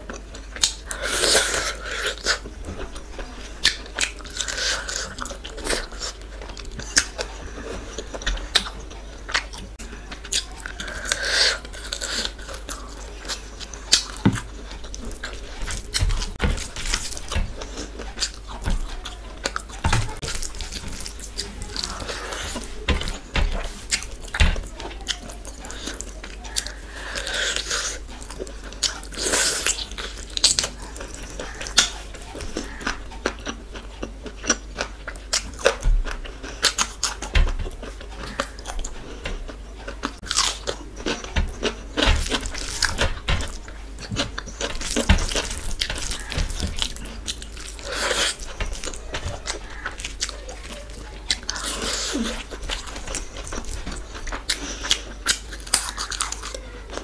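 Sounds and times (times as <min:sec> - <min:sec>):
person chewing food: 0:00.0 - 0:57.0
crunchy bites: 0:39.9 - 0:56.6.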